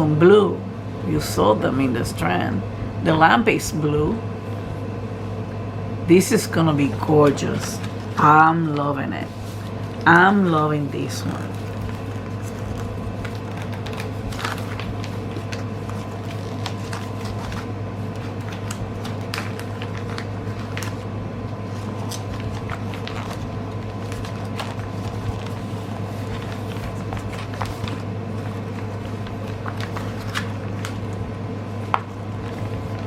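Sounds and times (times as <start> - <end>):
low electrical hum: 0.0 - 33.0
packaging clicks and crinkles: 11.7 - 21.1, 21.7 - 33.0.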